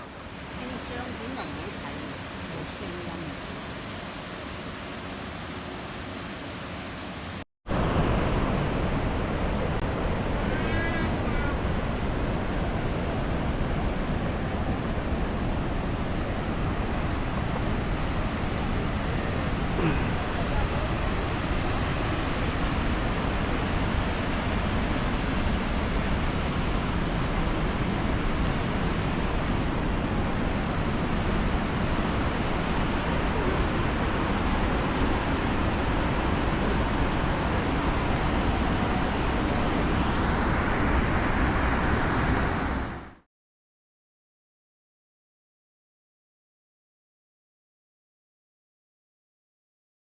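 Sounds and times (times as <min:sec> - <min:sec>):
waterfall rushing: 0:00.0 - 0:07.4
waterfall roaring: 0:00.0 - 0:43.2.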